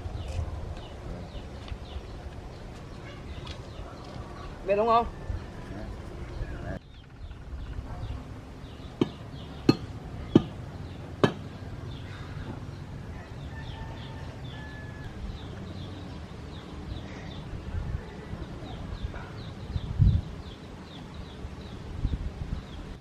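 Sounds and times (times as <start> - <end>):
sharp knocks: 9.0 - 10.6, 11.2 - 11.5.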